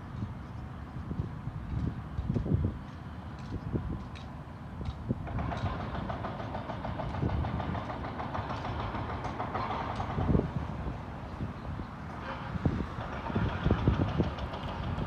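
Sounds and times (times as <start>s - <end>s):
demolition machinery clattering: 5.2s - 10.6s, 12.2s - 15.0s.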